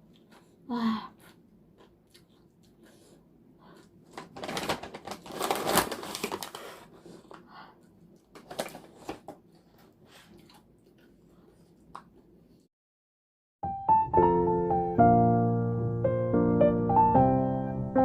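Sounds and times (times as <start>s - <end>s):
crunching crisp chips: 4.1s - 6.9s.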